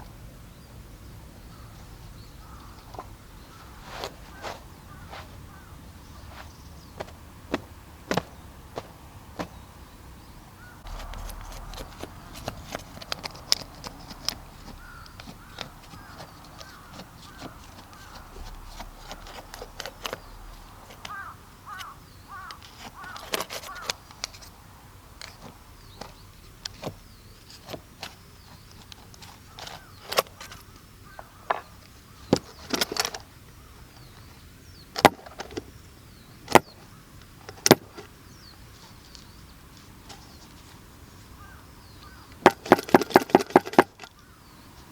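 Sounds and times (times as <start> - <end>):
birds calling: 0.0 - 44.9
campfire wood crackling: 2.4 - 27.4.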